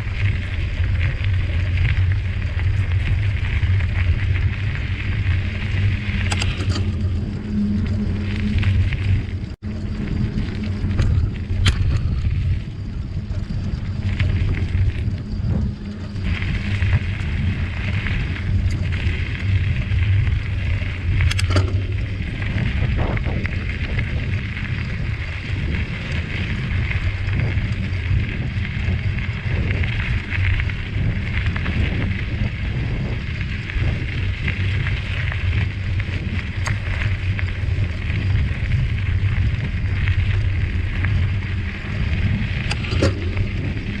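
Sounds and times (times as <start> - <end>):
bicycle tyres rumbling: 0.0 - 44.0
wind on microphone: 0.0 - 44.0
clicks and rattles: 6.0 - 7.3, 10.9 - 12.4, 21.1 - 23.5, 42.6 - 44.0.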